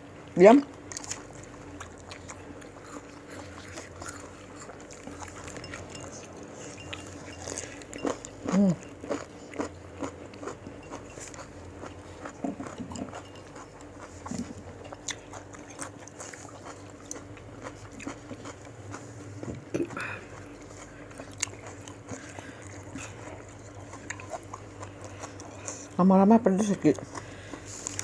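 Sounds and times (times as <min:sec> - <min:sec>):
biting and chewing crunchy fruit: 0:00.3 - 0:28.0
person humming: 0:08.5 - 0:08.8.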